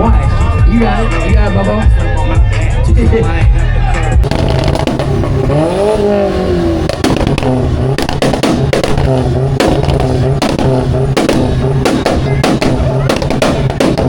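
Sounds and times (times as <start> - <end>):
car engine revving: 4.2 - 14.0
sharp exhaust pops: 4.2 - 14.0.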